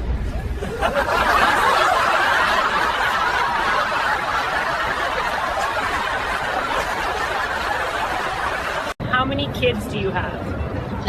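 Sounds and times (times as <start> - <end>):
people laughing: 0.2 - 9.0.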